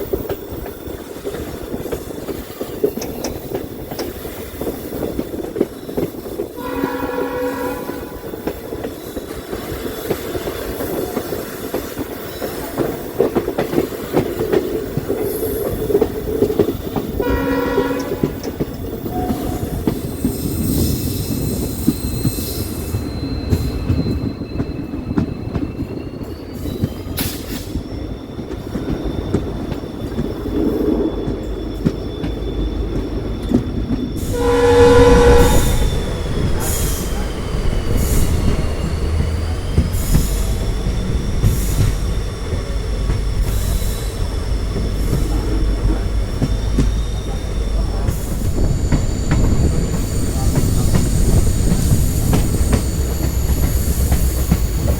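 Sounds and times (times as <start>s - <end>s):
train wheels rumbling on rails: 0.0s - 54.9s
high wheel squeal: 5.6s - 54.9s
locomotive horn: 6.6s - 8.5s, 17.2s - 19.8s, 34.2s - 36.8s.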